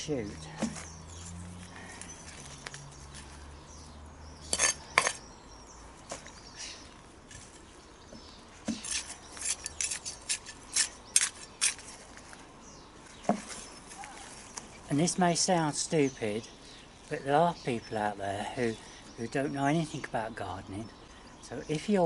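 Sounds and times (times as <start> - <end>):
tool scraping and clinking in soil: 0.5 - 3.4, 4.4 - 5.3, 7.2 - 7.7, 8.6 - 12.4.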